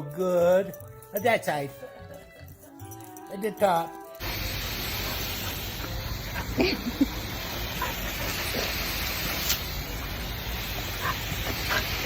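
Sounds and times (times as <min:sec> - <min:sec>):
garden hose spraying water: 0:03.7 - 0:12.0.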